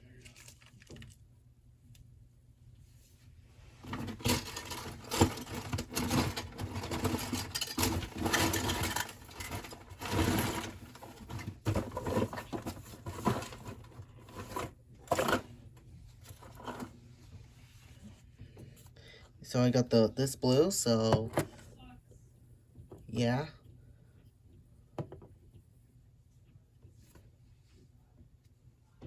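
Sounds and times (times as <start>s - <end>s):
markers clattering and rustling: 3.8s - 15.5s.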